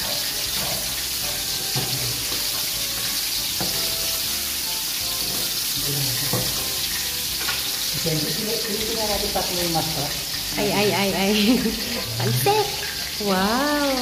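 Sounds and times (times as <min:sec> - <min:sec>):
spatula scraping a pan: 0:00.0 - 0:04.2
pork sizzling in a wok: 0:00.0 - 0:14.0.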